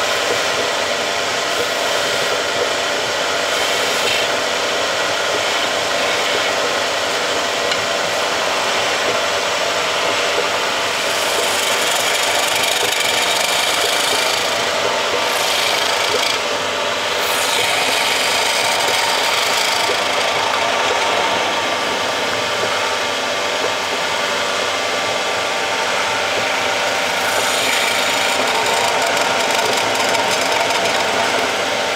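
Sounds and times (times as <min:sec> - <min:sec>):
tool scraping wood on lathe: 0:10.9 - 0:16.5, 0:17.1 - 0:21.3, 0:27.0 - 0:31.6.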